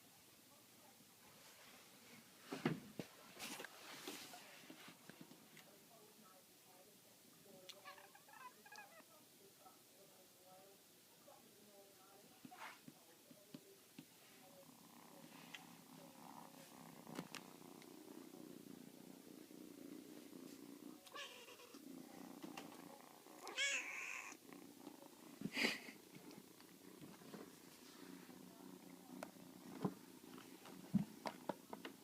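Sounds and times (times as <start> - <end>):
kitten purring: 11.3 - 32.0.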